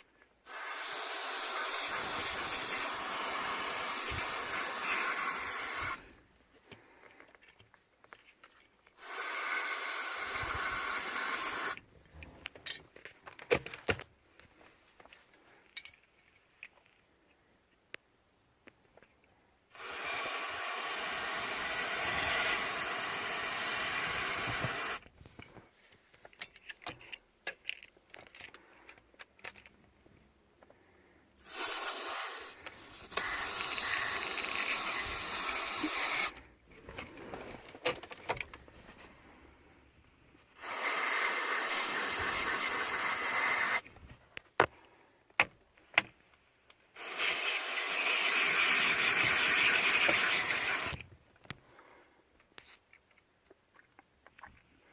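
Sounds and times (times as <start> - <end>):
spray hissing: 0.4 - 6.1, 9.0 - 11.8, 19.7 - 25.0, 31.4 - 36.4, 40.6 - 43.9, 47.0 - 51.0
clicks and handling noises: 6.4 - 9.0, 11.8 - 19.4, 25.0 - 30.8, 52.4 - 54.8.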